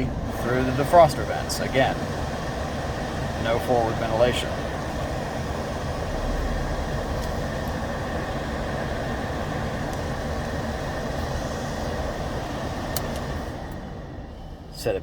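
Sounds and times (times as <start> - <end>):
air rushing from vents: 0.0 - 15.0
blower fan running: 0.0 - 15.0
small click: 12.9 - 13.3.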